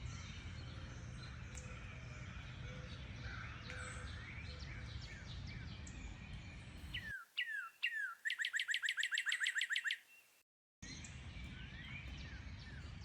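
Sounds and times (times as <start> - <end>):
birds chirping: 6.8 - 10.4
bird fast trill: 6.9 - 10.3.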